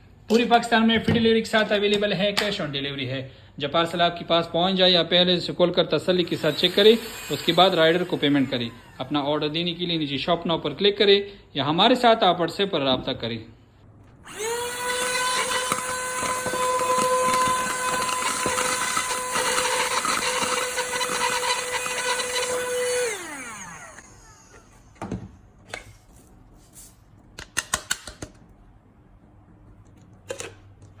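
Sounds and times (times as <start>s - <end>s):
vacuum cleaner motor whine: 6.3s - 9.4s, 14.2s - 24.8s.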